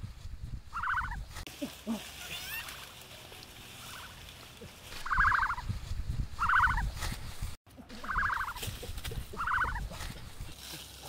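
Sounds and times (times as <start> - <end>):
low rumble of movement: 3.2 - 8.1.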